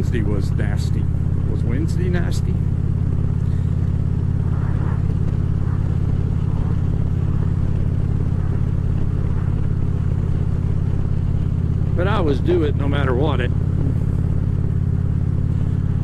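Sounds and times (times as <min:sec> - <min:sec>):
motorcycle engine droning: 0:00.0 - 0:16.0.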